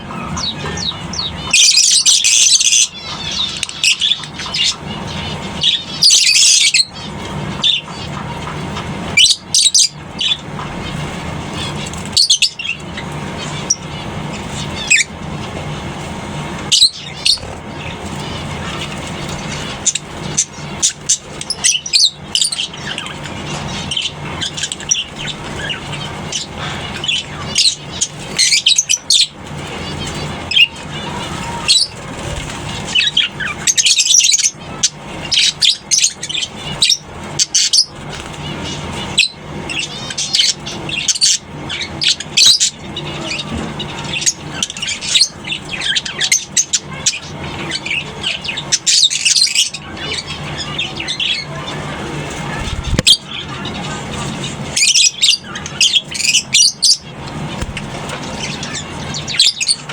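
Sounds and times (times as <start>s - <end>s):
lovebirds chattering and shrieking: 0.0s - 59.9s
steady low hum: 0.0s - 59.9s.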